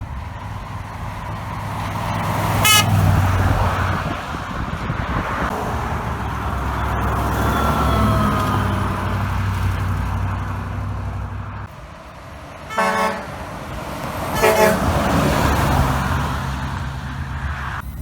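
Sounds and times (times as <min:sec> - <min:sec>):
heavy truck passing: 0:00.0 - 0:18.0
truck horn blast: 0:02.5 - 0:03.4, 0:12.7 - 0:13.6, 0:14.2 - 0:15.8.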